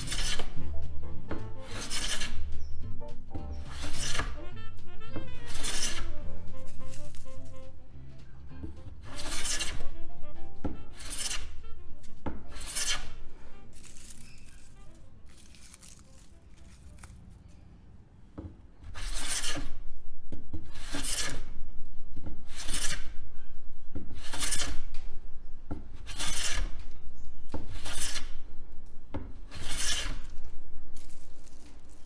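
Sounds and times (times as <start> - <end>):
hand plane cutting wood: 0.0 - 14.3, 18.8 - 19.8, 20.6 - 21.6, 22.4 - 23.2, 24.0 - 25.1, 25.8 - 28.5, 29.2 - 31.1.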